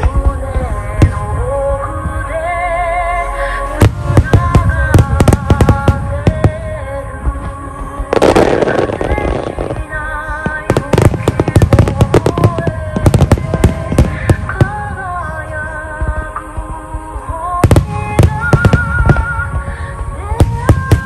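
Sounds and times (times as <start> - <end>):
melodic music: 0.0 - 21.0
hissing crackle: 3.4 - 21.0
fireworks bangs: 3.8 - 16.4, 17.6 - 21.0.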